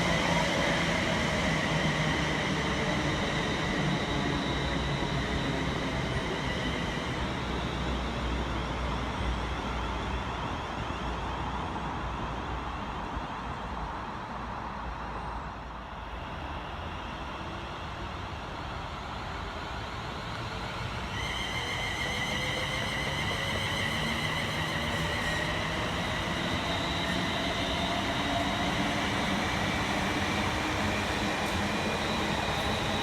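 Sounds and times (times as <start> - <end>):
train rumble: 0.0 - 14.8, 16.0 - 33.0
high-pitched whine: 16.0 - 33.0.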